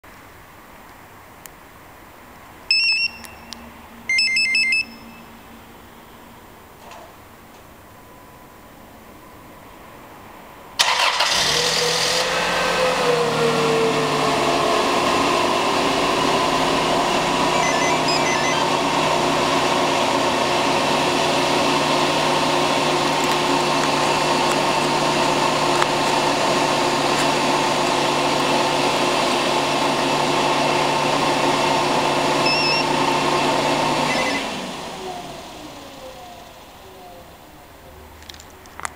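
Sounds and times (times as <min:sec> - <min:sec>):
car engine cranking and idling: 0:10.8 - 0:38.9.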